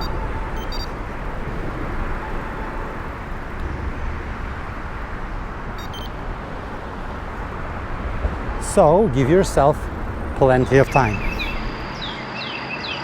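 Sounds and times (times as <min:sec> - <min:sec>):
high chirps: 0:00.0 - 0:01.4, 0:05.8 - 0:06.2
wind and road noise: 0:00.0 - 0:13.0.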